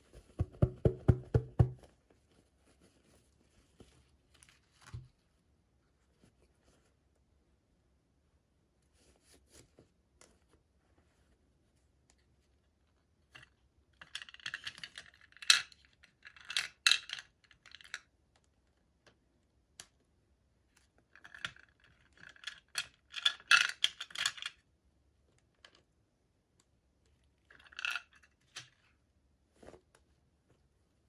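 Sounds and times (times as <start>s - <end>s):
plastic pieces clicking and crinkling: 13.4s - 18.1s, 21.2s - 24.6s.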